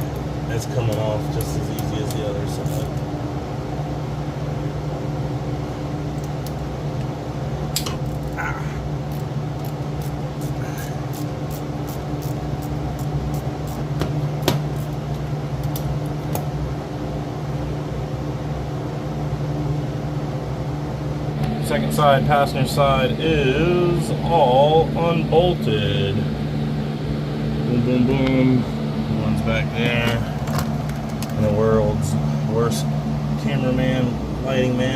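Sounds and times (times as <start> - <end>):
machine hum: 0.0 - 34.9.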